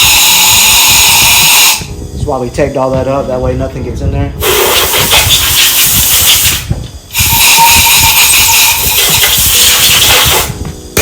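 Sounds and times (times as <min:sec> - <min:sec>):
compressed air blow gun hissing: 0:00.0 - 0:02.0, 0:04.4 - 0:10.6.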